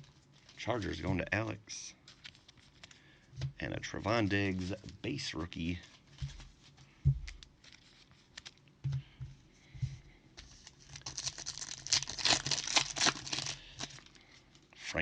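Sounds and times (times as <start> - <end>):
foil wrapper tearing and crinkling: 10.6 - 14.2.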